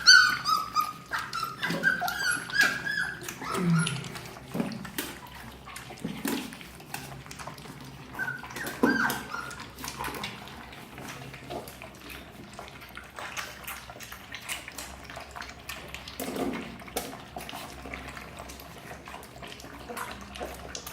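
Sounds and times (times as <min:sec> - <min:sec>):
puppies whimpering: 0:00.0 - 0:04.5, 0:07.4 - 0:10.9.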